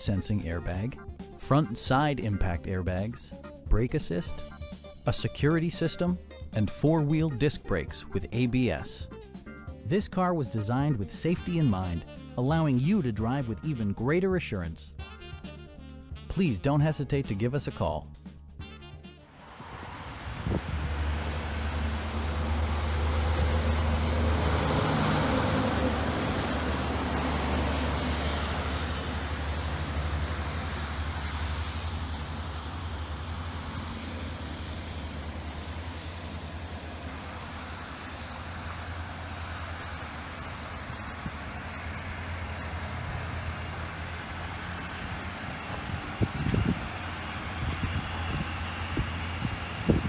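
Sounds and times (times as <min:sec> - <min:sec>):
car engine hum: 0:19.3 - 0:50.0
road and wind noise: 0:19.3 - 0:50.0.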